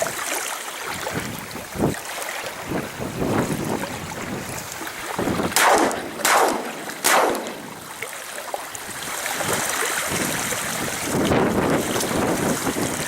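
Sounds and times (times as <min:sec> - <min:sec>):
wind buffeting microphone: 0:02.6 - 0:08.0, 0:08.9 - 0:13.0
shotgun shots: 0:05.5 - 0:08.0.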